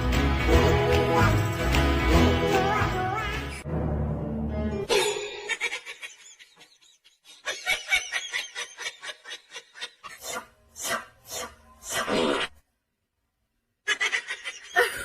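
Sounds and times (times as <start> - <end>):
laughter in quick pulses: 4.9 - 10.4.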